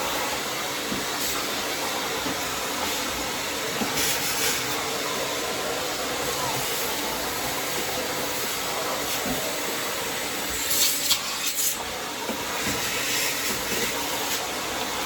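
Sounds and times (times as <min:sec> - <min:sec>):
high-pressure spray hissing on metal: 0:02.6 - 0:04.8, 0:06.5 - 0:15.0.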